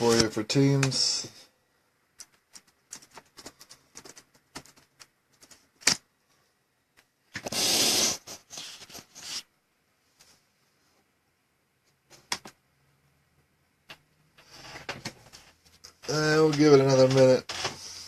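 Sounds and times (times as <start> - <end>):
small clicks and taps: 2.2 - 6.0
rustling noise: 7.3 - 11.1, 14.4 - 18.0.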